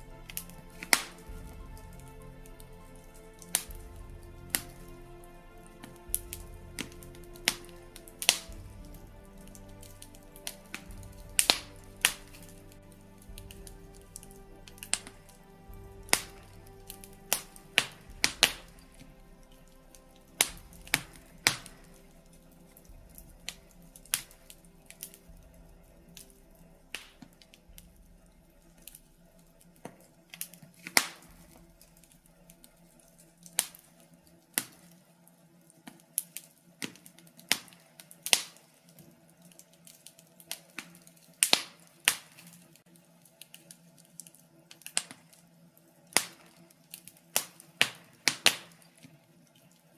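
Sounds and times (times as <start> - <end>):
wood fire crackling: 0.0 - 49.9
sharp pops and snaps: 0.1 - 29.1, 35.9 - 39.0, 39.9 - 42.6, 43.4 - 45.4, 46.1 - 49.1.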